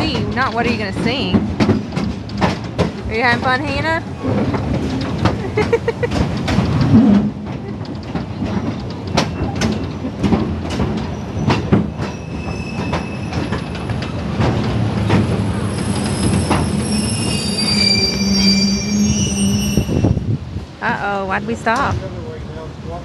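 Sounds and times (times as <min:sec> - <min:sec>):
wheels clacking over rail joints: 0:00.0 - 0:19.2
train rolling rumble: 0:00.0 - 0:23.0
high-pitched wheel squeal: 0:12.1 - 0:13.7, 0:15.6 - 0:20.2.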